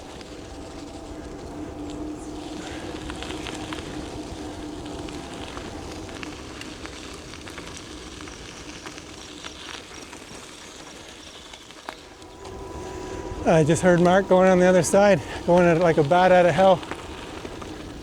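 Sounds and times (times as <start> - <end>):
electric motor whine: 0.0 - 7.3, 11.9 - 18.0
tyres crackling over gravel: 0.0 - 18.0.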